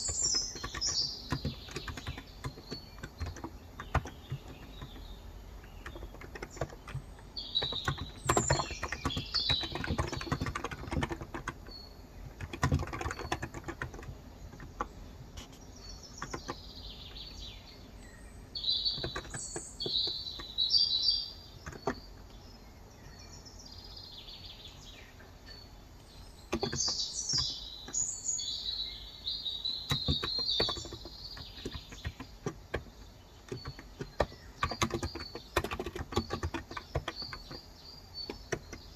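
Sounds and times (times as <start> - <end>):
songbirds chirping: 0.0 - 38.9
keyboard keystrokes: 0.2 - 5.0, 5.6 - 7.0, 7.6 - 15.6, 19.0 - 19.4, 26.5 - 27.6, 29.9 - 37.6.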